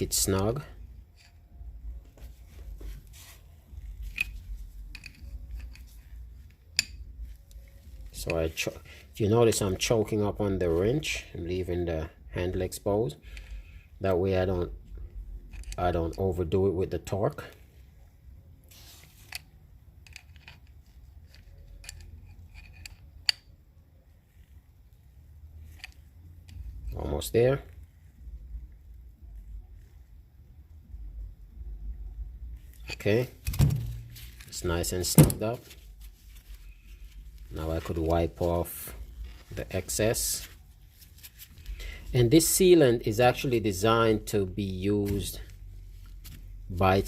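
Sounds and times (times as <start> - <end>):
low steady hum: 0.0 - 47.0
wrench clicking and scraping metal: 3.7 - 7.6, 15.5 - 16.3, 19.1 - 23.5.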